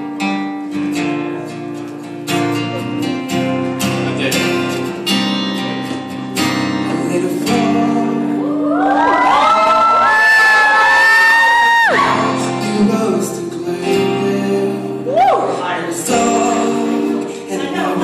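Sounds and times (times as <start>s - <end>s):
acoustic guitar strumming: 0.0s - 9.3s, 11.8s - 18.0s
audience whooping and cheering: 8.4s - 12.4s, 15.1s - 15.6s.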